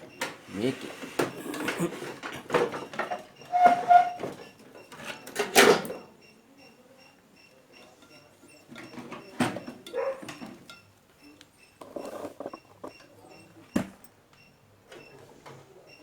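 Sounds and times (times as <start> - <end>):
scraping and rustling handling noises: 11.8 - 13.0.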